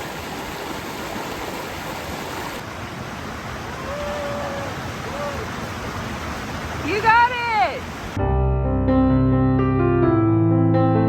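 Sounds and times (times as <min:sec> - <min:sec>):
creek water rushing: 0:00.0 - 0:08.2.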